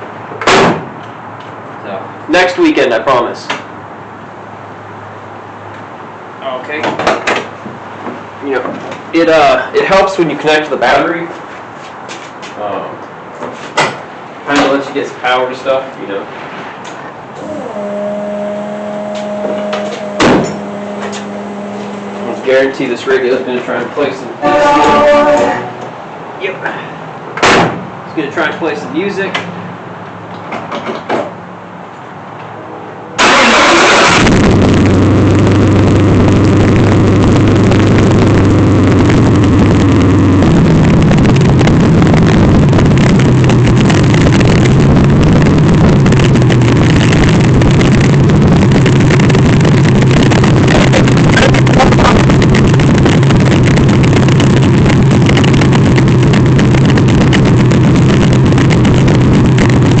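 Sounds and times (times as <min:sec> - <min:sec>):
car engine cranking and running: 0:16.9 - 0:23.1, 0:33.2 - 1:00.0.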